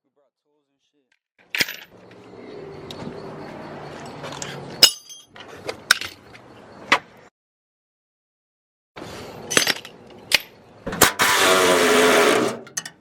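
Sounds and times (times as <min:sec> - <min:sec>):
metal tools clinking and knocking: 0:01.5 - 0:02.0, 0:04.0 - 0:06.4, 0:09.4 - 0:10.6, 0:12.6 - 0:13.0.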